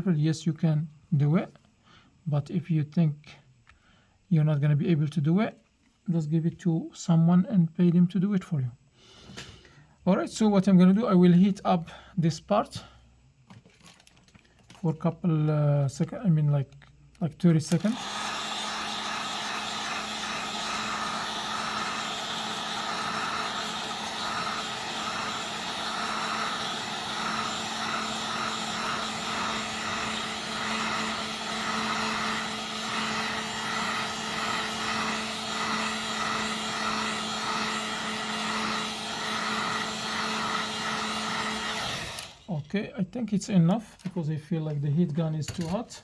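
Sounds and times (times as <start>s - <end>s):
heat gun blowing hot air: 17.7s - 42.5s.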